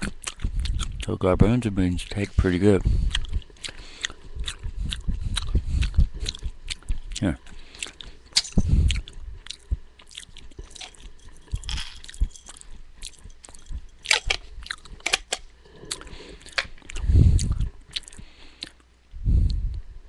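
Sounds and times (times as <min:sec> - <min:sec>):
crisp crunching of beans: 0:05.4 - 0:18.9.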